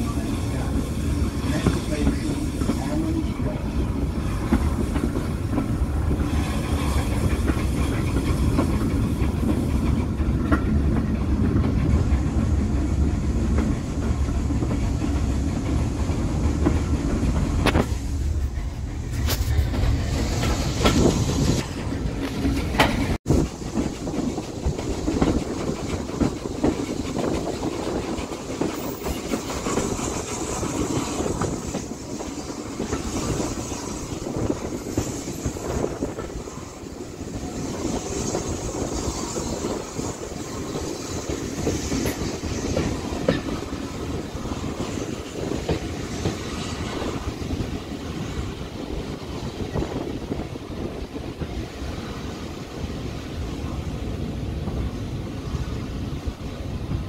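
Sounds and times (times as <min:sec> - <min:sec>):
train wheels rumbling on rails: 0:00.0 - 0:57.0
wheels clacking over rail joints: 0:04.0 - 0:48.2.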